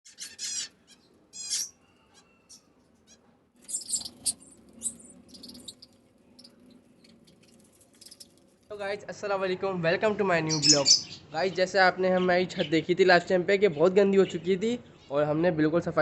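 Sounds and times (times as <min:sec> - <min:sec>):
budgies chirping and chattering: 0:00.1 - 0:08.3, 0:10.0 - 0:12.9.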